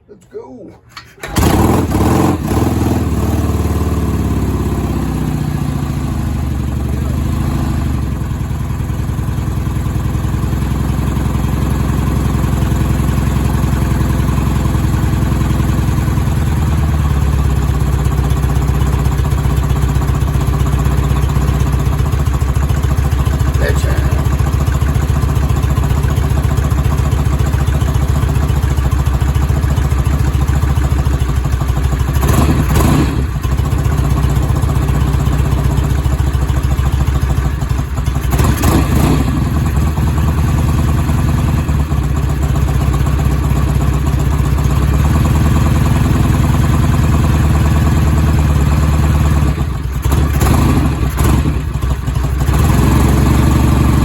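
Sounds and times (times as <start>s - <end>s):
motorcycle engine running: 1.2s - 54.0s.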